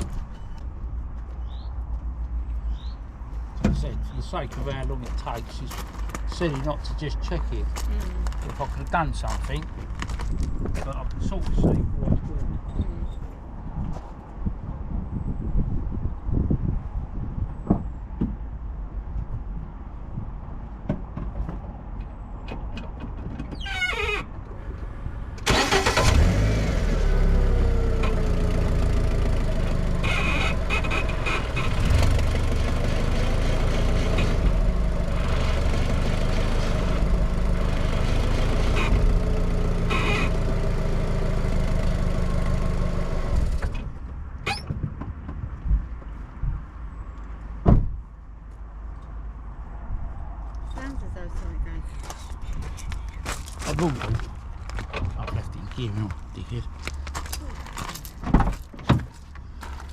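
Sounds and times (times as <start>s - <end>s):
vehicle engine running: 25.5s - 43.7s.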